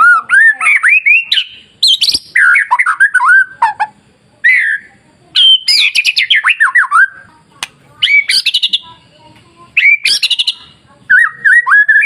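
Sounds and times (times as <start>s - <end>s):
bird singing whistled notes: 0.0s - 3.6s, 4.4s - 7.2s, 8.0s - 8.9s, 9.8s - 12.0s.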